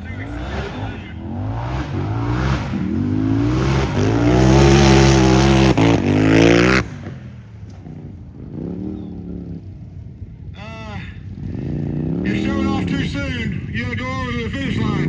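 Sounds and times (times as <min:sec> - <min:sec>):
race engine revving hard: 0:00.0 - 0:07.3, 0:11.4 - 0:13.6, 0:14.5 - 0:15.0.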